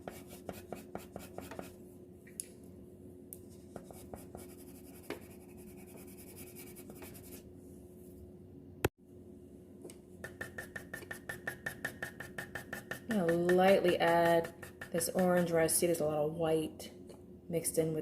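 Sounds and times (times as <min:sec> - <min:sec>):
pencil scratching on paper: 0:00.0 - 0:01.7, 0:03.8 - 0:07.4, 0:10.2 - 0:15.4.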